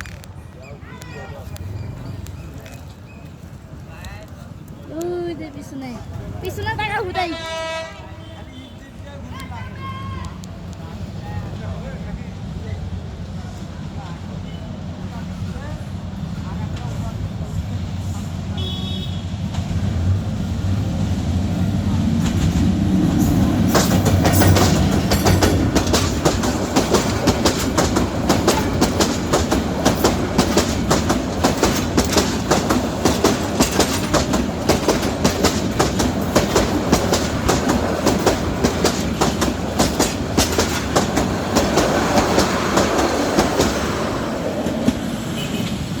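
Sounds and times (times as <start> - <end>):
train wheels clicking over rail joints: 0.0 - 5.1, 19.4 - 46.0
locomotive rumble: 0.0 - 46.0.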